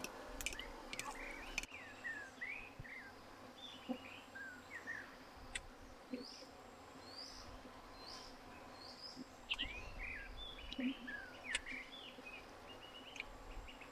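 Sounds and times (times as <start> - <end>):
faint clicks: 0.0 - 1.7, 13.1 - 13.4
small birds chirping: 0.0 - 13.9.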